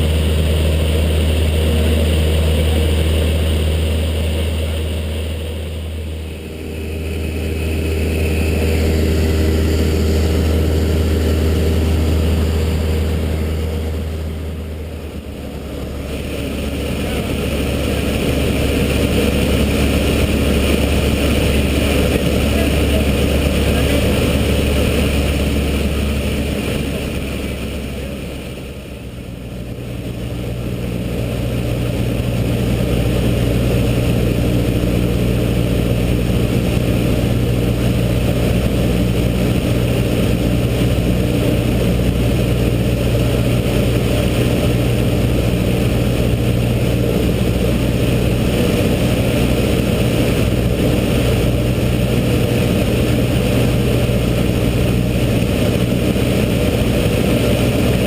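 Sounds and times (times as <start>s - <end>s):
propeller plane engine droning: 0.0s - 58.0s.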